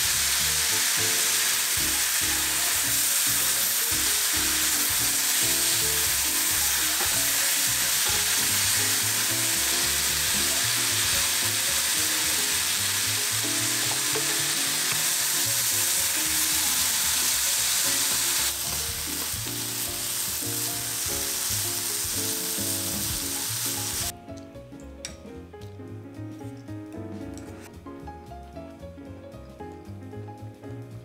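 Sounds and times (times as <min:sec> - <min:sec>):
vegetables sizzling in a pan: 0:00.0 - 0:24.1
background music: 0:00.0 - 0:31.0.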